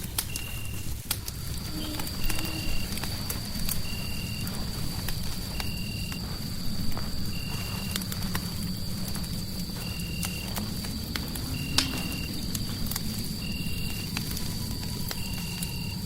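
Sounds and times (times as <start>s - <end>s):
fireplace crackling: 0.0s - 16.0s
low rumble: 0.0s - 16.0s.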